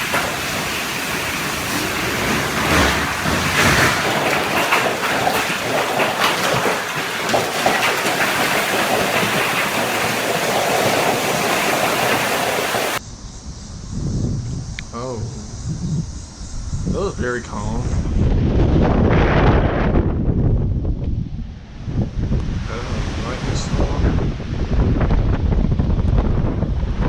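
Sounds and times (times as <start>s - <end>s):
heavy rain: 0.0s - 13.0s
wind on microphone: 0.0s - 27.0s.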